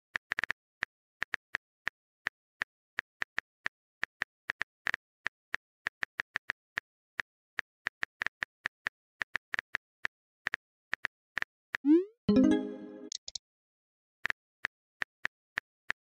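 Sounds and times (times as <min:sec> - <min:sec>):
notification tone: 0:11.9 - 0:13.2.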